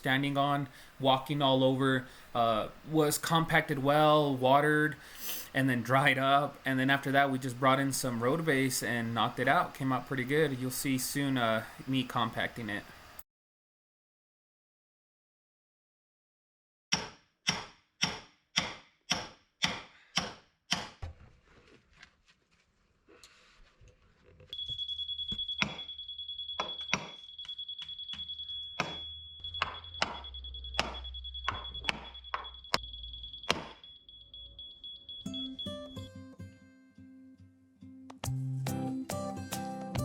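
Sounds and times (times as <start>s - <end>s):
steady high-pitched tone: 24.6s - 36.3s
sharp ringing knocks: 25.3s - 25.9s, 26.6s - 27.3s, 28.1s - 32.8s, 33.4s - 33.9s.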